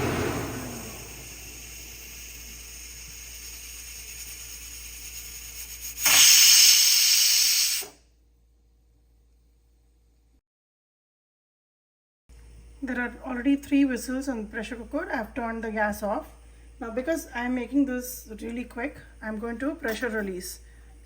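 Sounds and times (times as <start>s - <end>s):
pressure cooker hissing steam: 0.0s - 8.0s
pressure cooker whistle: 0.0s - 8.0s.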